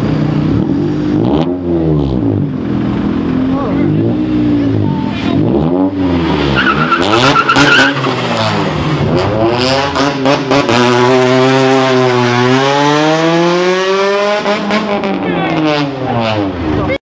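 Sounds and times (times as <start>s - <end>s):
car engine revving: 0.0s - 17.0s
tire squeal: 6.1s - 9.0s.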